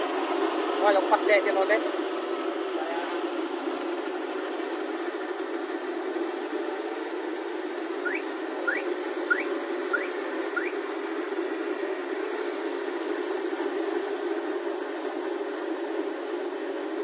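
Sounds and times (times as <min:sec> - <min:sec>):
combine harvester humming: 0:02.4 - 0:16.0
short rising chirps: 0:08.0 - 0:10.8.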